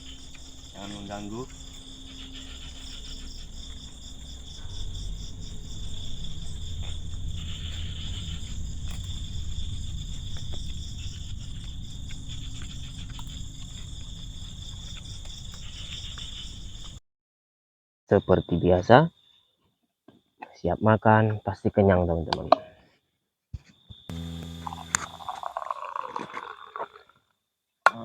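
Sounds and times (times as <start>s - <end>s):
crickets chirring: 0.0s - 17.0s, 23.8s - 27.0s
low rumble: 3.3s - 15.6s.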